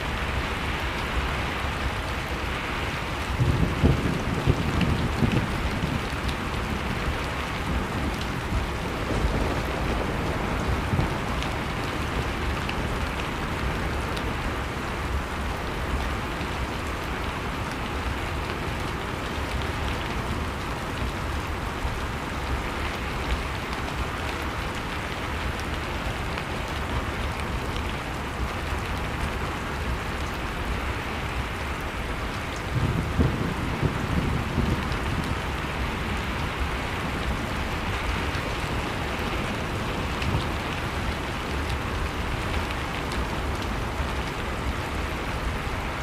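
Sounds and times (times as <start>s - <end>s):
wood fire crackling: 0.0s - 46.0s.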